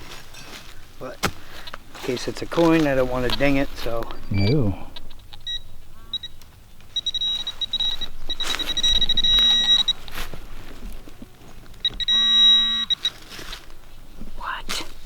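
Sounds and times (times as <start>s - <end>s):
digging knocks: 0.0s - 5.0s
low hum: 0.0s - 15.0s
metal detector high-pitched tone: 4.2s - 11.0s, 11.8s - 13.2s
metal detector short beeps: 4.3s - 10.1s, 11.8s - 13.2s.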